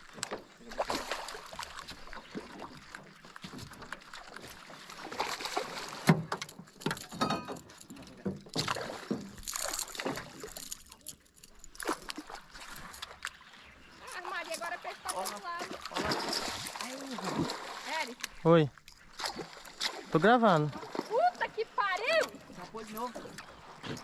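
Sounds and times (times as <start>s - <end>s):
fishing gear knocking and rattling: 6.0s - 13.2s, 22.2s - 24.0s.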